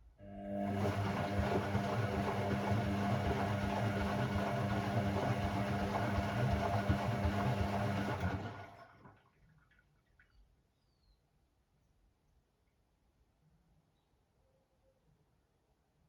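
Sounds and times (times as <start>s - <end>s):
washing machine humming: 0.2s - 9.3s.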